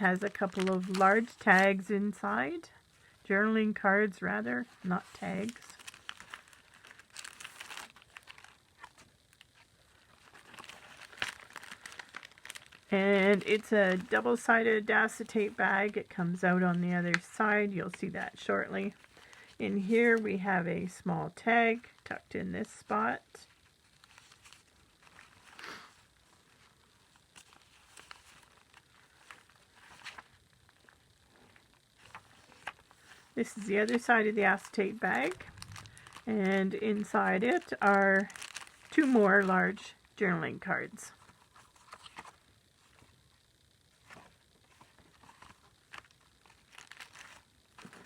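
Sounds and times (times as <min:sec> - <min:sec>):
paper cards rustling: 0:00.0 - 0:01.9, 0:04.7 - 0:16.0, 0:23.5 - 0:31.0, 0:32.0 - 0:39.8, 0:41.2 - 0:43.1, 0:44.0 - 0:48.0
plastic bag crinkling: 0:00.0 - 0:01.9, 0:04.7 - 0:15.9, 0:23.4 - 0:39.8, 0:44.0 - 0:48.0.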